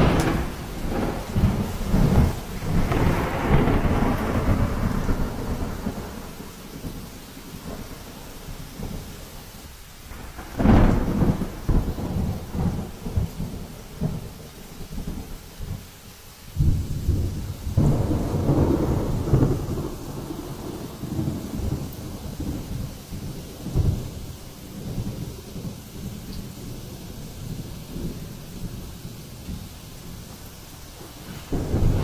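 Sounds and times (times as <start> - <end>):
thunder crack: 0.0 - 7.9, 10.1 - 15.3, 16.6 - 26.2, 31.0 - 32.0
rolling thunder: 0.0 - 9.2, 10.1 - 15.9, 16.6 - 32.0
rain: 0.0 - 32.0.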